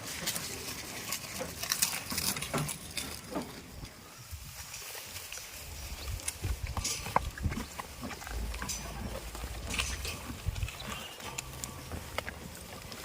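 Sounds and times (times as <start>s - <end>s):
goats' hooves clicking and knocking: 0.0s - 13.0s
low rumble: 6.0s - 13.0s.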